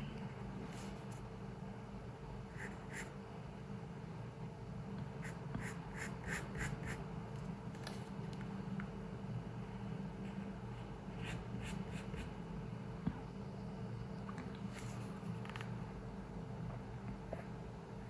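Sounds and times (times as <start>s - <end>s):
low room hum: 0.0s - 18.0s
pencil scratching on paper: 2.5s - 3.2s, 5.2s - 7.0s, 11.1s - 12.4s.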